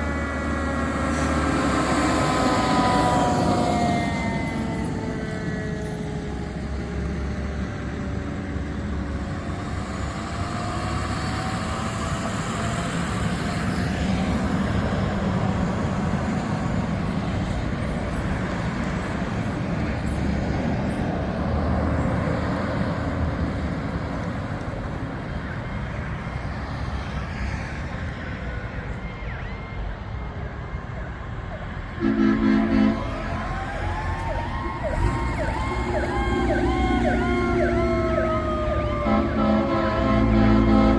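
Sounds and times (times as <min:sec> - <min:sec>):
fire truck diesel engines rumbling: 0:00.0 - 0:40.9
loud horn blast: 0:32.0 - 0:33.2, 0:38.9 - 0:40.9.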